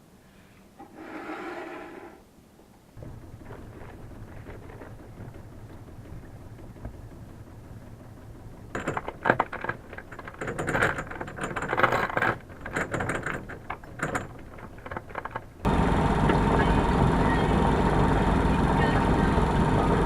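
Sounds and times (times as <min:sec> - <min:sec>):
low steady hum: 0:02.0 - 0:20.0.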